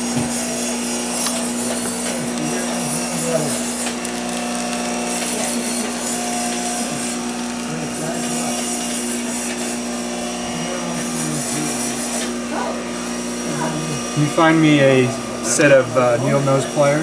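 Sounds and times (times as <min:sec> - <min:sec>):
rough uneven scraping: 0:00.0 - 0:12.8
power tool motor running: 0:00.0 - 0:17.0.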